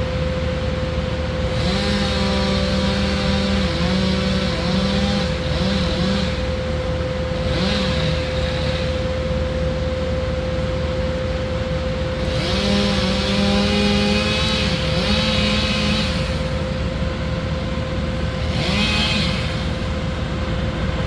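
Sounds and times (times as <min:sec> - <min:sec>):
steady engine hum: 0:00.0 - 0:21.0
chainsaw revving: 0:01.4 - 0:09.2, 0:12.1 - 0:20.3.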